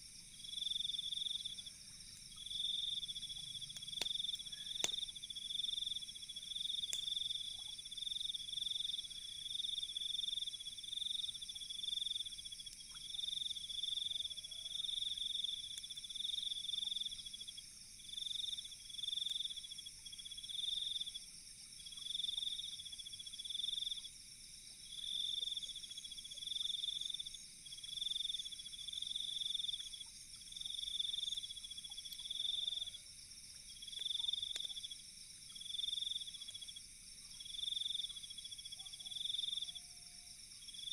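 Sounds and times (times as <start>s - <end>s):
faint fire crackles: 0.0s - 39.5s
steady high insect trill: 0.0s - 40.9s
insects chirping in pulsed trills: 0.1s - 14.1s.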